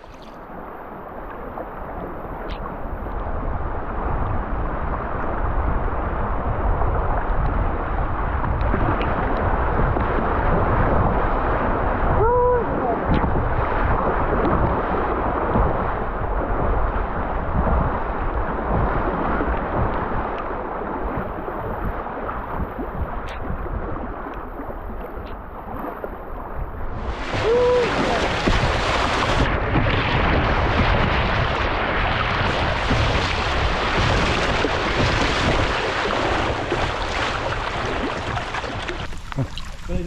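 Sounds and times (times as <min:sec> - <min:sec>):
river water flowing: 0:00.0 - 0:04.0, 0:23.6 - 0:40.0
wind buffeting microphone: 0:00.0 - 0:40.0.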